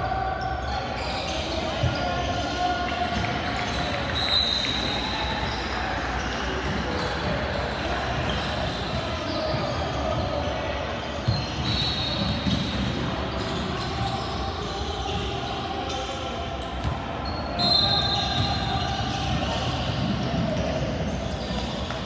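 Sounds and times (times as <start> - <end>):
din of gymnasium: 0.0 - 22.0
sneakers squeaking: 0.0 - 22.0
basketball bouncing on court: 16.8 - 17.0.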